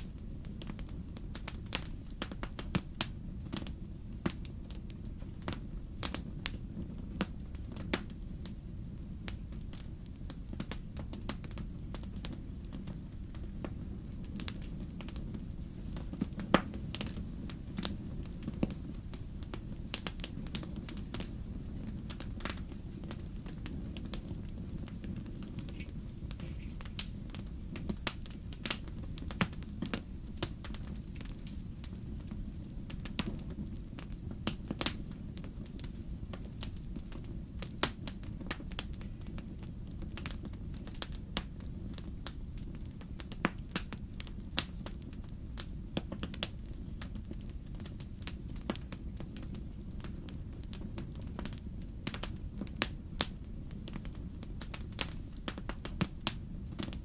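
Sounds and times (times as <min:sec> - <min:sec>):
fire popping and crackling: 0:00.0 - 0:57.0
wood fire rumbling: 0:00.0 - 0:57.0.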